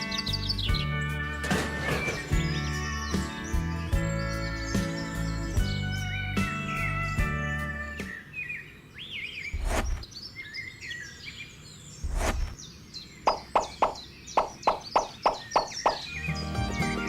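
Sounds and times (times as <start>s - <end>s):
birds chirping: 0.0s - 17.0s
heavy thuds: 9.5s - 10.0s, 12.0s - 12.6s
sharp taps: 13.3s - 16.0s.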